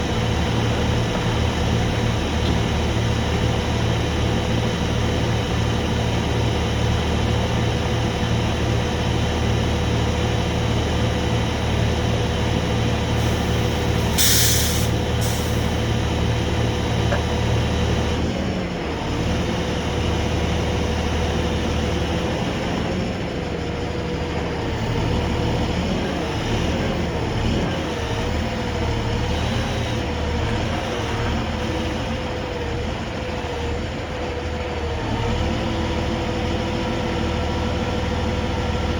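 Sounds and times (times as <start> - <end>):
tow truck engine running: 0.0 - 38.9
short hisses: 13.2 - 15.8.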